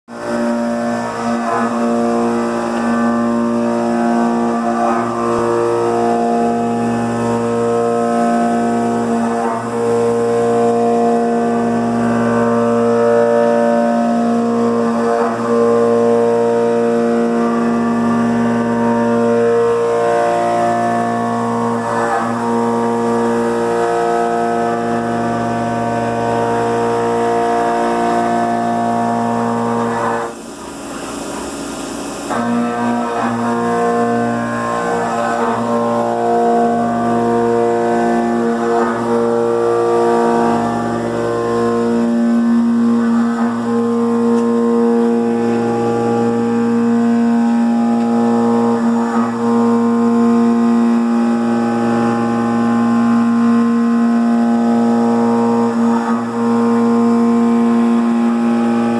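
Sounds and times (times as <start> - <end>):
cnc mill motors whining: 0.1 - 58.9.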